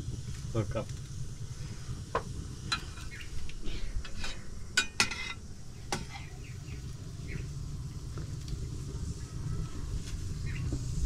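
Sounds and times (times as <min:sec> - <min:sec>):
metal utensil clinking on pot: 0:04.1 - 0:06.2.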